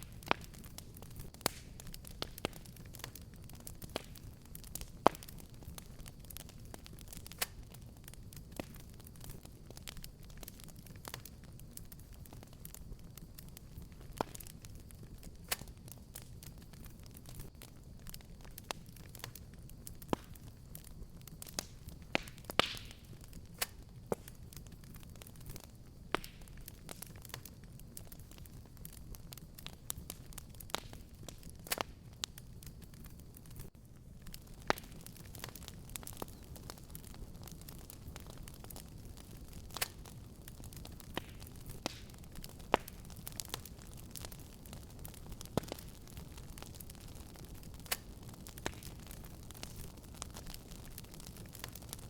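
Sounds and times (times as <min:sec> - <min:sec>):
low rumble of burning: 0:00.0 - 0:52.0
wood fire crackling and popping: 0:00.0 - 0:52.0.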